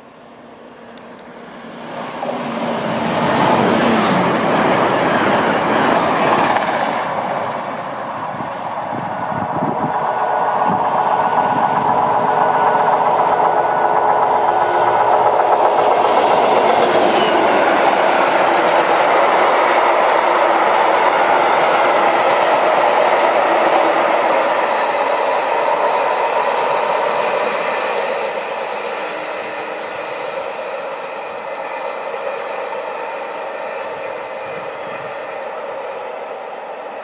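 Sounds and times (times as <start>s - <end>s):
diesel locomotive engine: 0.0s - 37.0s
train rushing past: 0.0s - 37.0s.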